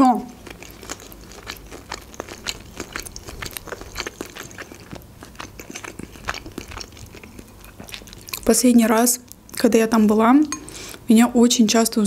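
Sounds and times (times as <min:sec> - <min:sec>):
wet chewing mouth clicks: 0:00.3 - 0:08.5.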